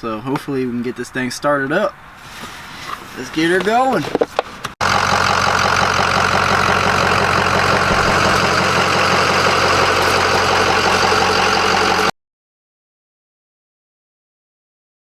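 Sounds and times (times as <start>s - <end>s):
diesel truck engine idling: 4.8s - 12.1s.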